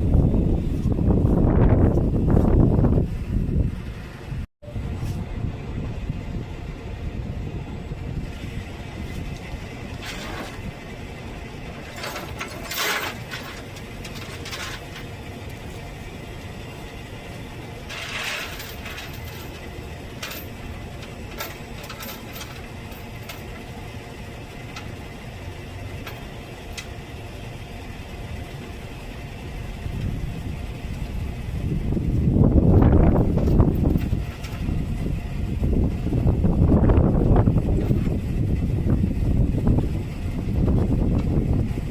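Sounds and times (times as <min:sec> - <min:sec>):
truck engine running: 0:00.0 - 0:41.9
short rattles and clicks: 0:11.8 - 0:15.6, 0:17.8 - 0:23.6.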